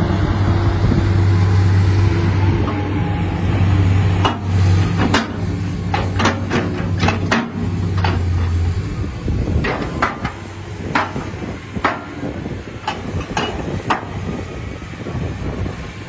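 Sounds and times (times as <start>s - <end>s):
excavator diesel engine rumbling: 0.0s - 16.0s
sharp metallic knocks: 4.2s - 8.3s, 9.6s - 14.1s.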